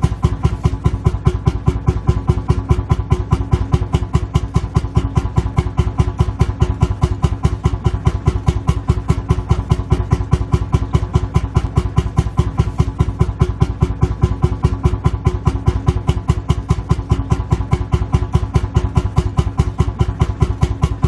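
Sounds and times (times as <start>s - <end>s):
tractor engine idling: 0.0s - 21.0s.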